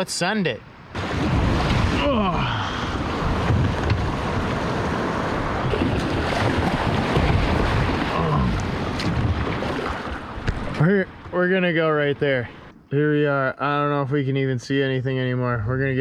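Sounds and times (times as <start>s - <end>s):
wind buffeting microphone: 0.9s - 11.4s.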